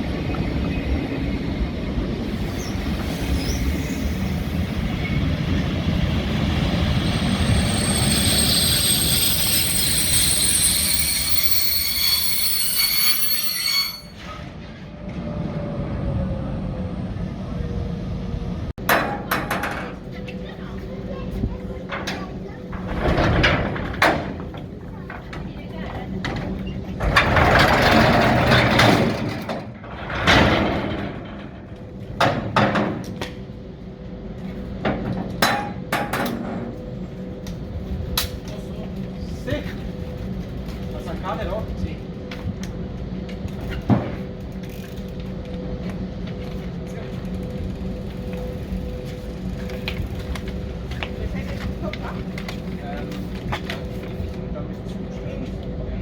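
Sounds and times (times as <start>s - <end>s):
rushing noise: 0.0s - 18.7s
train rumble: 0.0s - 56.0s
train wheels squealing: 2.3s - 5.8s, 6.5s - 15.0s.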